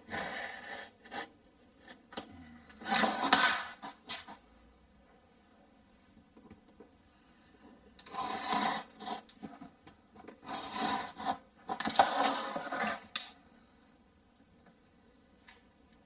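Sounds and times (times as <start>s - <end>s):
blade cutting plasterboard paper: 0.0s - 2.0s, 2.8s - 4.4s, 8.0s - 9.4s, 10.3s - 13.4s.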